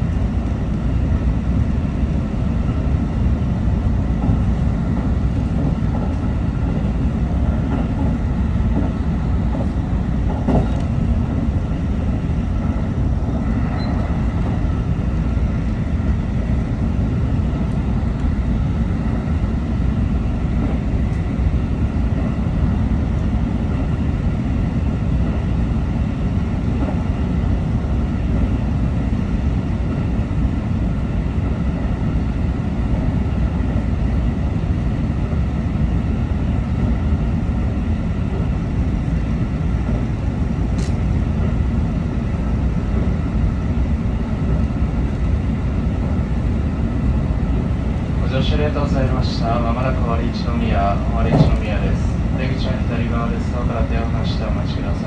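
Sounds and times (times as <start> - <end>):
train wheels rumbling on rail: 0.0 - 55.0
brief click: 40.8 - 41.0.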